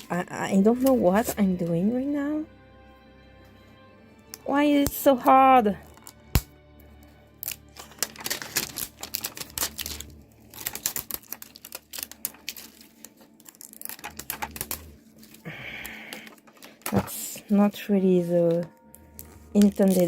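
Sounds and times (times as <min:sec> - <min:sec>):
plastic packaging clicking and crinkling: 0:07.4 - 0:17.4, 0:18.4 - 0:20.0.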